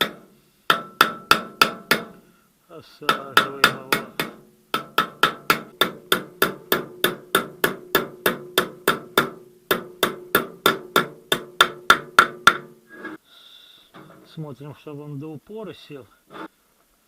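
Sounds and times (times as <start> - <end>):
hammer tapping metal: 0.0 - 2.2, 3.0 - 12.8.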